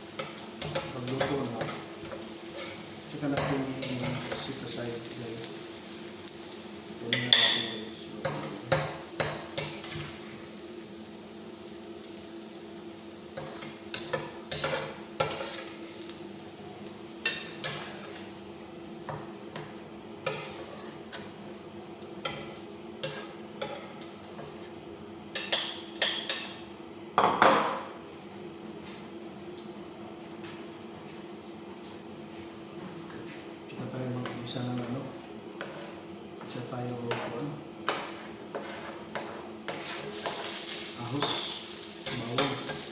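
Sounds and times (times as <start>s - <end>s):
metal cookware clanking: 0.2s - 5.6s, 7.0s - 10.4s, 13.4s - 15.8s, 40.0s - 42.9s.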